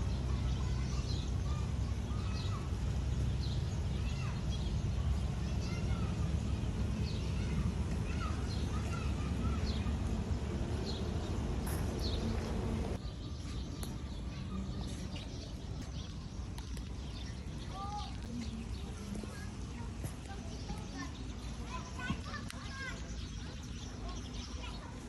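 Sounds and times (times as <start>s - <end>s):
low background rumble: 0.0s - 13.0s
small birds chirping: 0.0s - 25.0s.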